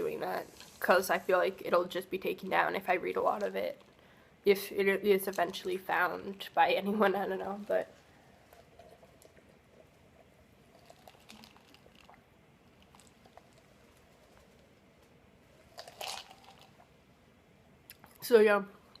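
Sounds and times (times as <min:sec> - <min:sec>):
chewing waffle: 0:07.9 - 0:15.1.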